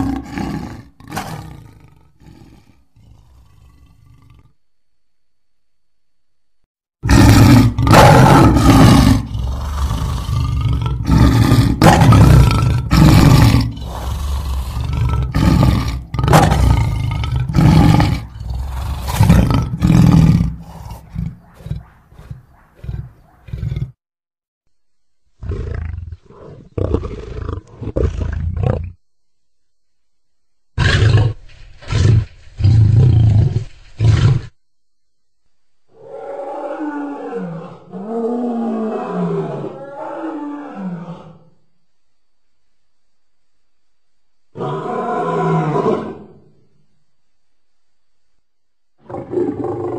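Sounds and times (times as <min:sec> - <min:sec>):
lion roaring: 0:00.0 - 0:04.6, 0:07.0 - 0:24.0, 0:25.4 - 0:29.0, 0:30.8 - 0:34.6, 0:35.9 - 0:41.6, 0:44.6 - 0:46.6, 0:49.0 - 0:49.9.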